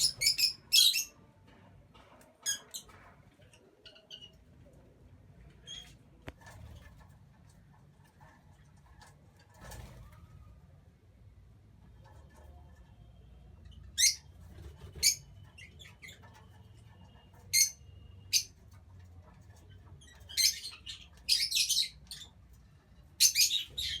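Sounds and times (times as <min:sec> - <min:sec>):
lovebirds chirping: 0:00.0 - 0:01.2, 0:23.2 - 0:24.0.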